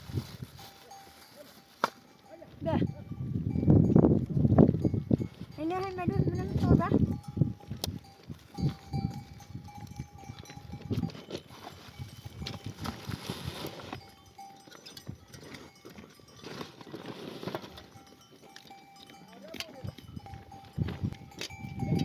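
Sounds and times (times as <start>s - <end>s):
rustling noise: 0.0s - 2.8s, 10.4s - 14.1s, 16.4s - 18.0s
livestock bells clinking: 0.4s - 22.0s.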